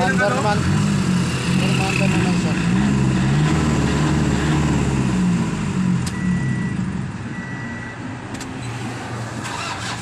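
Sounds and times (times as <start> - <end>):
faint high beeps: 6.1 - 8.0
van engine starting: 9.3 - 10.0.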